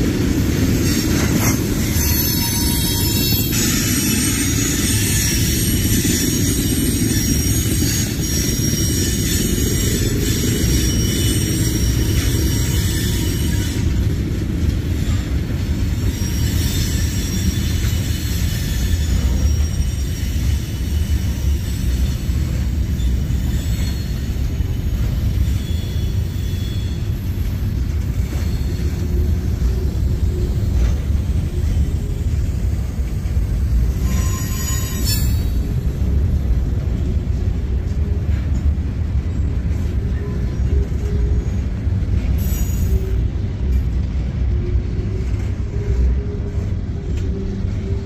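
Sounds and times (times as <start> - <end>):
train wheels rumbling on rail: 0.0 - 48.0
high-pitched wheel squeal: 0.8 - 14.1, 15.0 - 36.2, 39.3 - 43.4.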